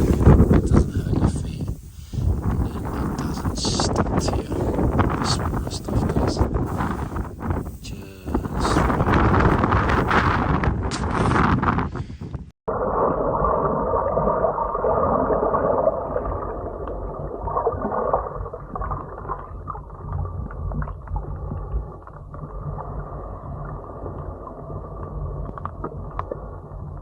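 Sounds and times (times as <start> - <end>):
steady hum: 0.0 - 11.7
underwater water rushing and gurgling: 0.0 - 11.8, 12.7 - 27.0.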